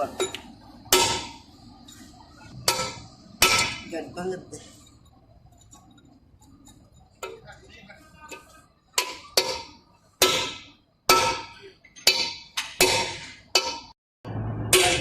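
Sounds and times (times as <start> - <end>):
steady low hum: 0.0 - 15.0
hammer striking metal drift: 0.2 - 4.0, 8.9 - 15.0.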